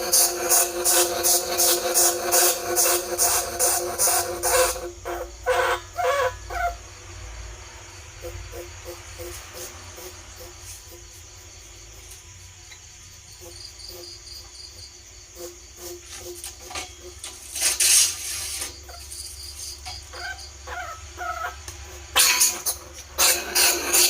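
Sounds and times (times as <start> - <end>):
cricket-like chirring: 0.0 - 24.0
scratching or rustling bursts: 8.1 - 12.6, 15.3 - 19.9.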